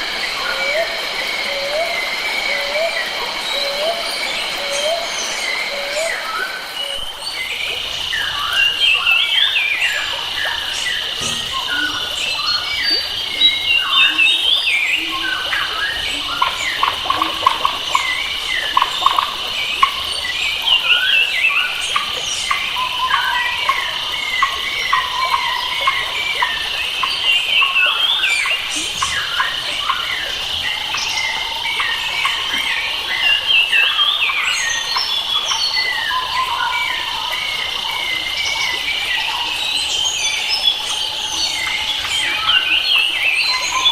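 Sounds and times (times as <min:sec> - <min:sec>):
high insect trill: 0:00.0 - 0:43.9
birds singing and chirping: 0:02.6 - 0:23.6.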